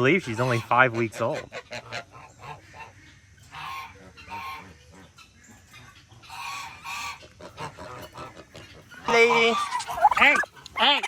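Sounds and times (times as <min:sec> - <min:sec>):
poultry calling: 0:00.2 - 0:11.0
faint clucks: 0:00.4 - 0:11.0.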